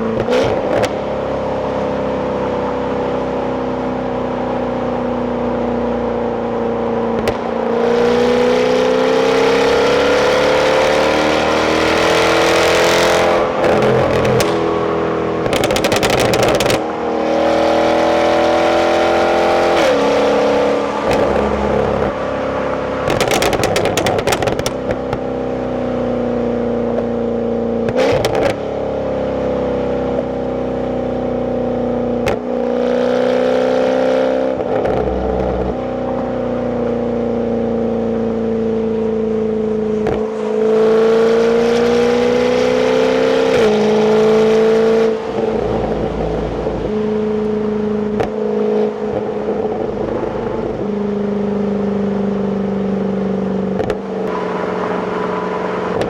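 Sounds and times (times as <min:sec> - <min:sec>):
car engine revving through gears: 0:07.2 - 0:24.8, 0:27.9 - 0:28.6, 0:32.2 - 0:36.8, 0:40.0 - 0:50.8, 0:53.7 - 0:56.0.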